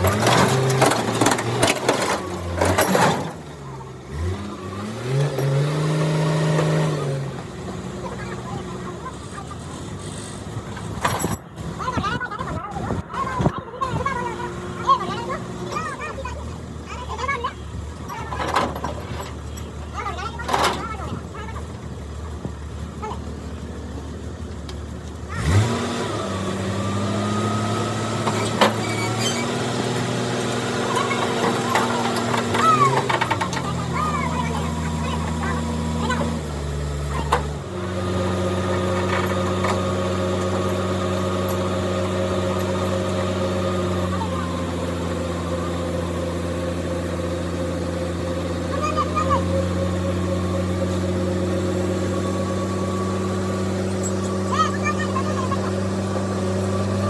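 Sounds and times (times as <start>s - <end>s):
motor speeding up: 25.3s - 57.0s.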